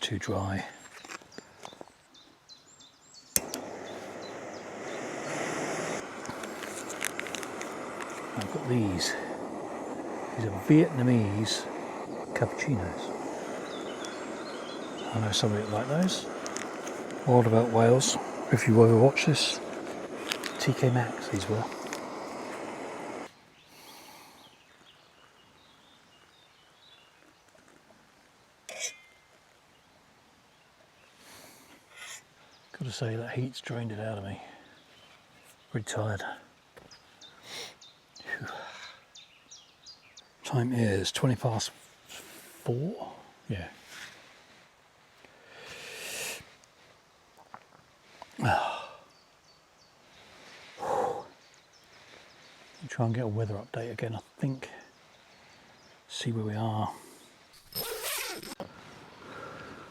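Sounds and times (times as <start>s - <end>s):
faint bird chirps: 0.6s - 7.0s, 7.6s - 27.6s, 47.1s - 59.9s
man breathing out: 23.7s - 24.6s, 45.3s - 46.5s, 48.4s - 49.1s, 50.6s - 51.4s, 59.2s - 59.9s.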